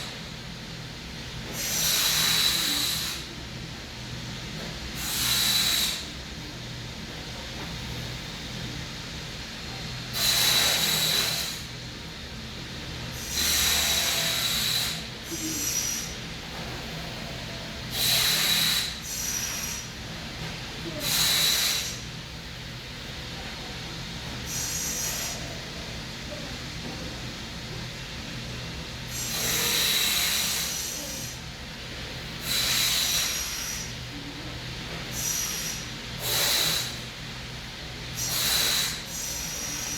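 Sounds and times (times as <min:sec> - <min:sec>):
low background hum: 0:00.0 - 0:39.9
deep breaths through nose: 0:01.5 - 0:03.3, 0:10.1 - 0:11.7, 0:13.2 - 0:20.0, 0:21.0 - 0:22.1, 0:29.1 - 0:31.4, 0:32.4 - 0:34.0, 0:35.0 - 0:37.1, 0:38.2 - 0:39.9.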